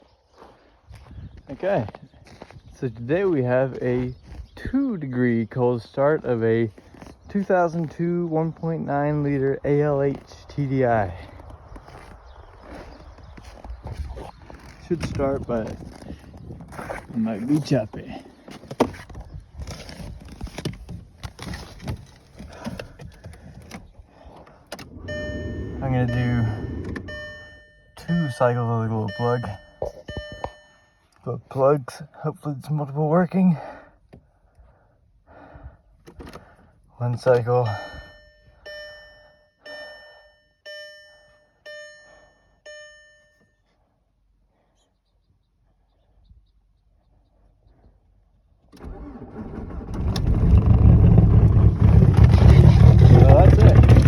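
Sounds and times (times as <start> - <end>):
car warning chime dings: 24.9 - 31.2, 37.2 - 43.6.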